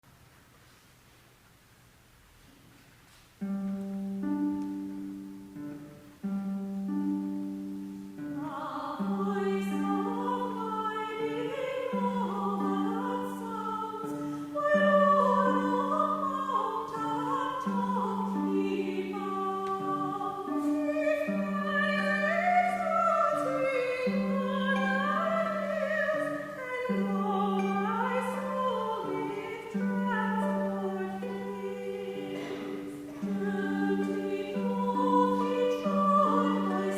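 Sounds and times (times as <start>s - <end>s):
harp playing low figure: 3.4s - 36.9s
person singing with vibrato: 7.2s - 36.9s.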